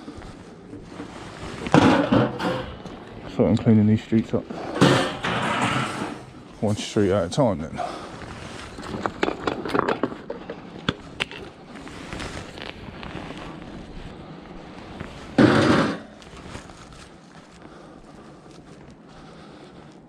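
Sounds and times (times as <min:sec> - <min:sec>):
hard objects clattering: 0:00.3 - 0:06.8, 0:08.2 - 0:12.7, 0:15.4 - 0:16.7.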